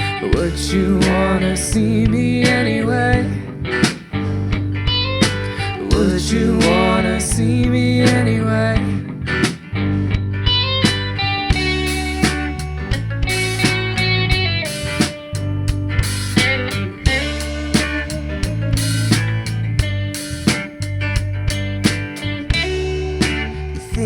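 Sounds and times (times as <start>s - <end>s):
acoustic guitar: 0.0s - 24.0s
bass guitar: 0.0s - 24.0s
electric lead guitar: 0.0s - 24.0s
drum kit beat: 3.8s - 6.8s, 10.5s - 24.0s.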